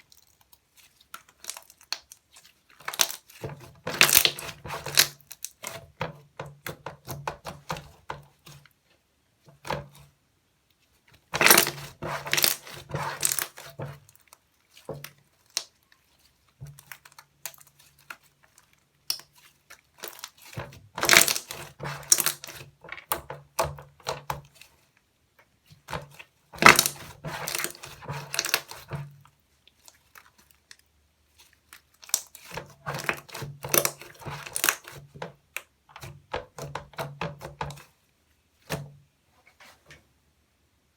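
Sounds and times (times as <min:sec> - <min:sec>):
slime crackling and popping: 0:00.0 - 0:05.7, 0:11.4 - 0:16.0, 0:16.8 - 0:22.6, 0:26.6 - 0:28.9.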